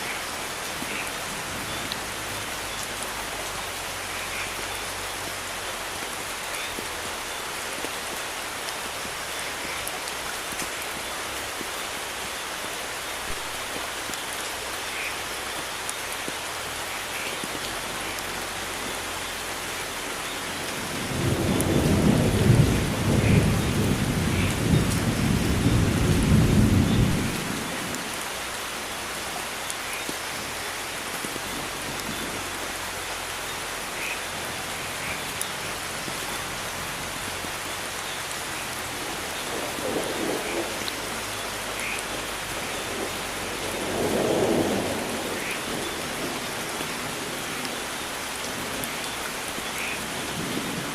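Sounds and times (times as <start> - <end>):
steady rain: 0.0 - 50.9
thunder rumbling: 20.6 - 28.2, 39.0 - 47.9.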